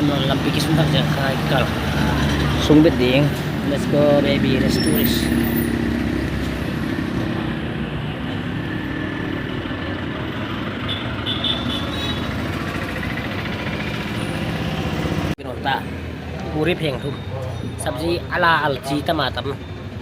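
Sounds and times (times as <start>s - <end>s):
digger engine running: 11.9s - 15.4s.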